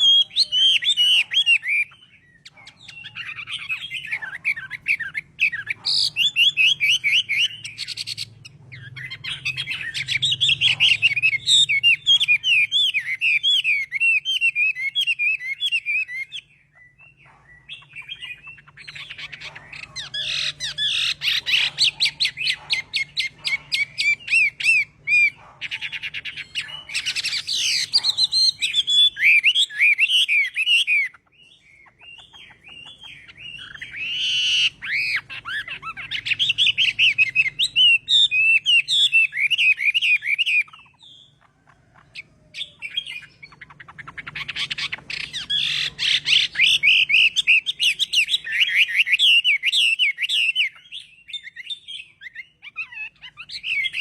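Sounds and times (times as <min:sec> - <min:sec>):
bird singing whistled notes: 0:00.0 - 0:41.4, 0:42.0 - 0:54.0.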